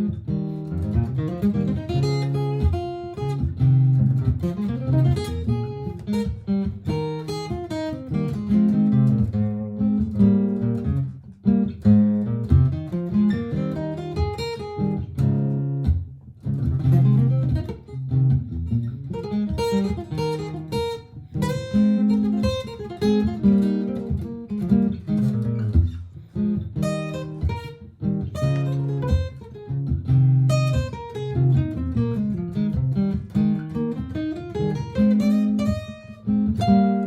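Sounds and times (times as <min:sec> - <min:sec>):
acoustic guitar strumming and picking: 0:00.0 - 0:37.0.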